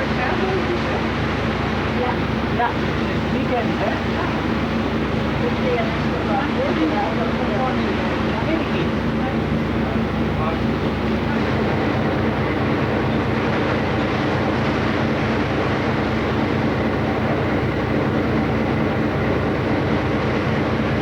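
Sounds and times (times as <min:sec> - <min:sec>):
ship engine drone: 0:00.0 - 0:20.5.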